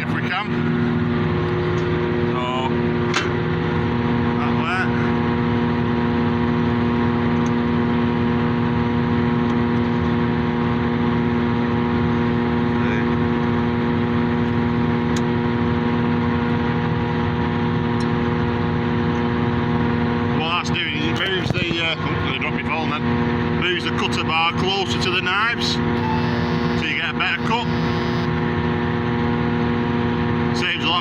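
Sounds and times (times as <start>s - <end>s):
forage harvester humming: 26.0s - 28.7s.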